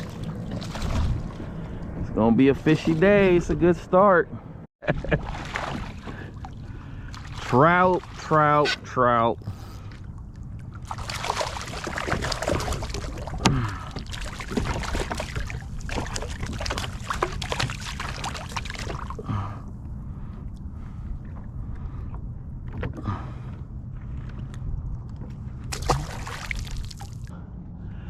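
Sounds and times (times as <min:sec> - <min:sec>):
water splashing around kayak: 0:00.0 - 0:03.8, 0:04.8 - 0:27.3
low rumble: 0:00.0 - 0:28.0.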